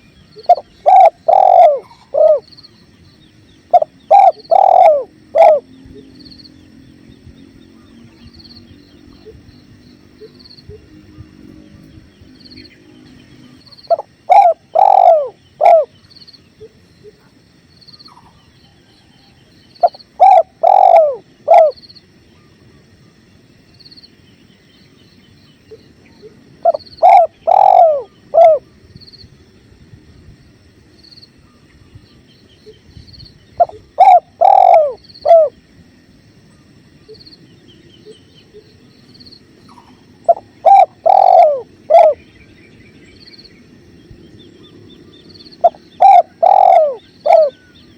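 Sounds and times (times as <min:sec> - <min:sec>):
dove cooing: 0:00.0 - 0:02.9, 0:03.6 - 0:06.2, 0:13.5 - 0:17.4, 0:19.8 - 0:21.8, 0:26.1 - 0:28.8, 0:33.6 - 0:35.6, 0:39.6 - 0:42.3, 0:45.6 - 0:47.9.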